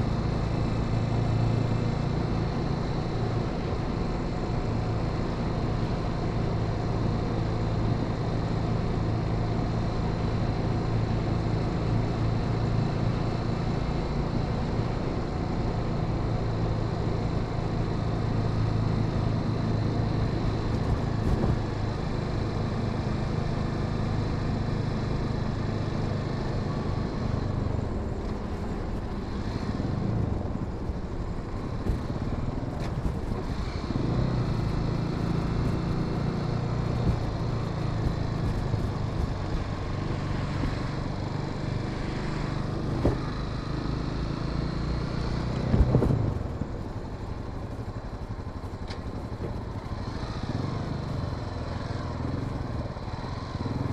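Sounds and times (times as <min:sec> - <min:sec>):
motorcycle engine running: 0:00.0 - 0:53.9
road noise: 0:00.0 - 0:53.9.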